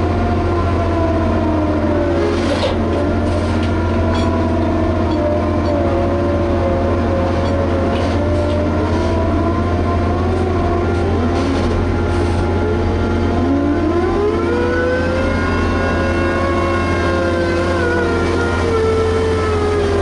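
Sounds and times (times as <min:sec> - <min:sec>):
excavator engine humming: 0:00.0 - 0:20.0
whining tone rising in pitch: 0:00.0 - 0:20.0.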